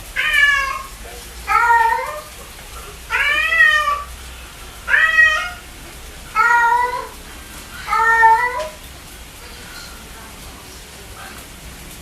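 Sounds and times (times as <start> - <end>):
cat meowing: 0.2 - 2.4, 3.1 - 4.1, 4.9 - 5.7, 6.3 - 7.2, 7.8 - 8.8.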